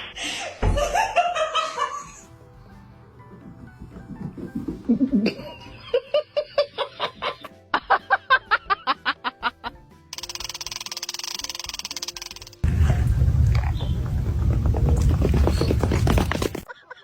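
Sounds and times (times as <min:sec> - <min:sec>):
faint background music: 0:00.1 - 0:12.7
rapid pulsing laughter: 0:16.5 - 0:17.0.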